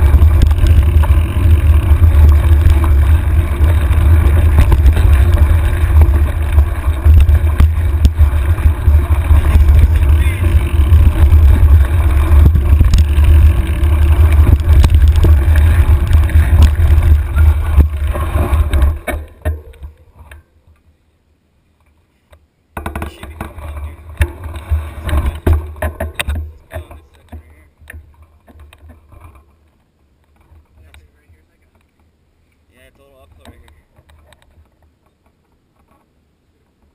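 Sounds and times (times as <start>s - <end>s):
wind buffeting microphone: 0.0s - 19.0s
bike rattling and clattering: 0.0s - 20.5s, 22.7s - 32.1s.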